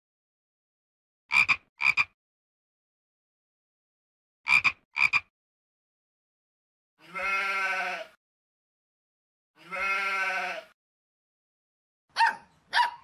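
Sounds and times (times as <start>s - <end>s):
sheep bleating: 7.0s - 8.2s, 9.6s - 10.8s.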